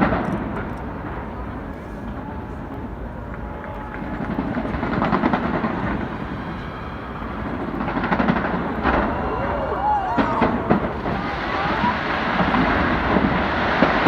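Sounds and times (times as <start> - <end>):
fireworks bursting and crackling: 4.0 - 14.0.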